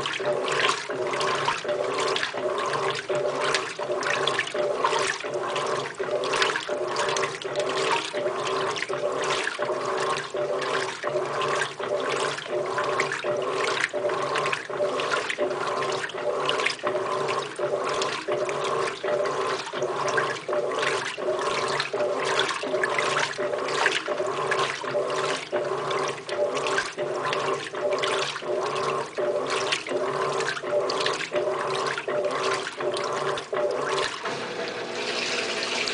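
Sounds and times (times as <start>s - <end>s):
washing machine motor humming: 0.0s - 35.9s
water and laundry swishing: 0.0s - 35.9s.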